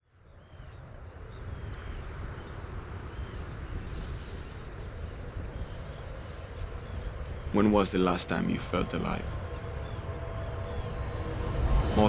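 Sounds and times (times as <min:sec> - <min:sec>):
wind rumble on microphone: 0:00.2 - 0:07.9, 0:08.8 - 0:12.0
steady rush: 0:07.6 - 0:12.0.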